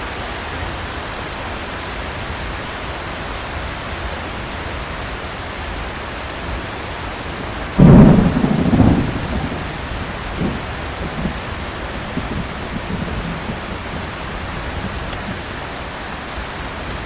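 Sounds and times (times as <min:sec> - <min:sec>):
heavy rain: 0:00.0 - 0:17.0
thunderclap rumbling: 0:07.3 - 0:16.0.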